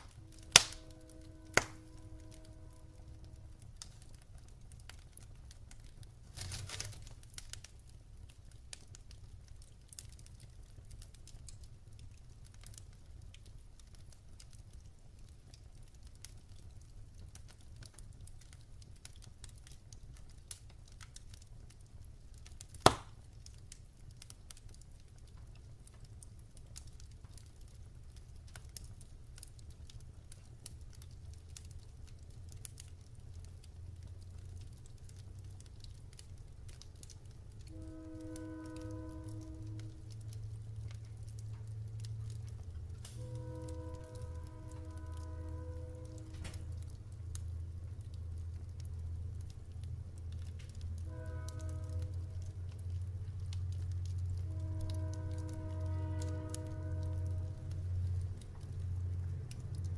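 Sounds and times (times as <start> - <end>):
low steady rumble: 0.0 - 59.9
wood fire crackling: 0.0 - 59.9
sharp loud pop: 22.8 - 23.1.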